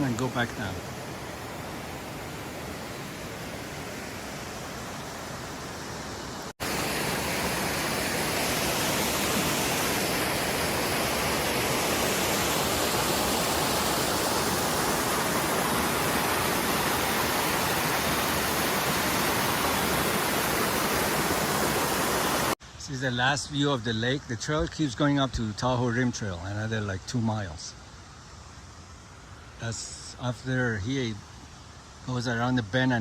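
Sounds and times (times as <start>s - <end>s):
waterfall rushing: 0.0s - 22.6s.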